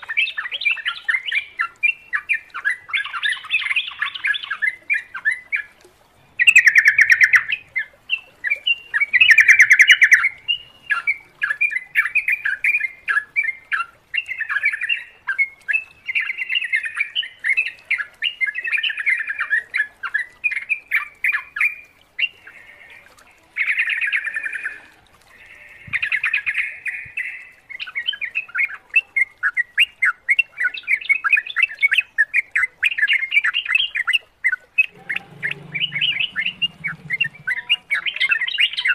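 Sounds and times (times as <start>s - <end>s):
birds chattering: 34.8s - 38.9s.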